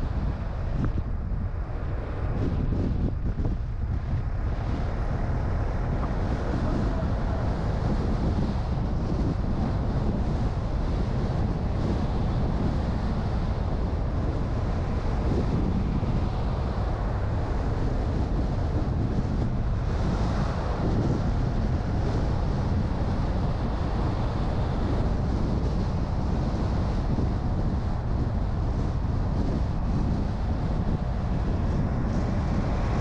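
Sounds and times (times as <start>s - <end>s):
car road and wind noise: 0.0s - 33.0s.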